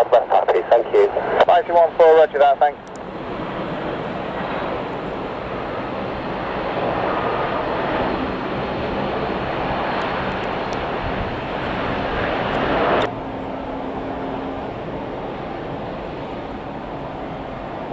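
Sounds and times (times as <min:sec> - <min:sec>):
aircraft engine rush: 0:00.0 - 0:17.9.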